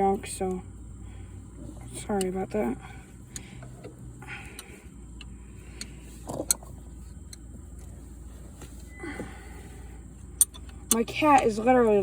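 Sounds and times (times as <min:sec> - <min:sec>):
steady low hum: 0:00.0 - 0:12.0
wrench clicking on metal: 0:10.4 - 0:11.5.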